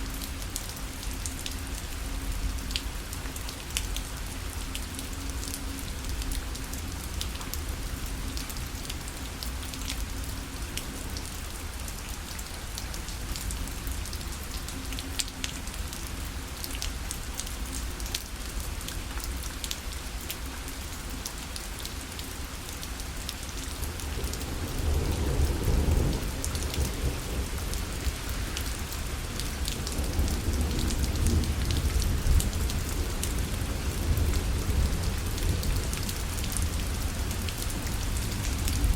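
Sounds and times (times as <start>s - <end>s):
rain on a parasol: 0.0s - 38.9s
low rumble of thunder: 24.1s - 38.9s.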